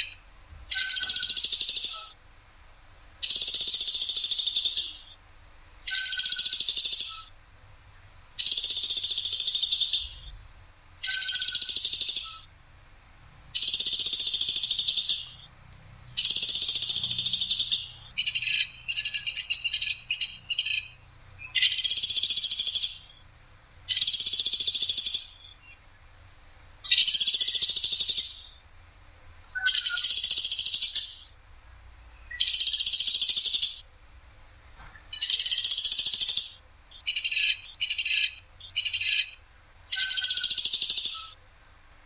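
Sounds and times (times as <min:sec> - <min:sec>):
woodpecker rattling trills: 0:00.0 - 0:02.2, 0:03.2 - 0:05.2, 0:05.8 - 0:07.4, 0:08.4 - 0:10.4, 0:11.0 - 0:12.5, 0:13.1 - 0:23.2, 0:23.9 - 0:25.7, 0:26.8 - 0:28.6, 0:29.5 - 0:31.3, 0:32.3 - 0:33.9, 0:35.1 - 0:41.4.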